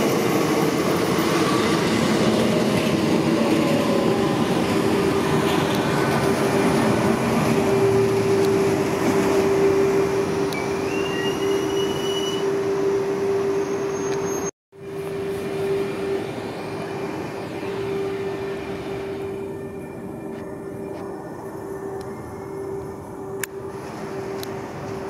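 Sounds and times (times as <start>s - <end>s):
electric train running with hum: 0.0s - 25.0s
thin wheel squeal: 10.6s - 12.5s, 13.4s - 14.5s.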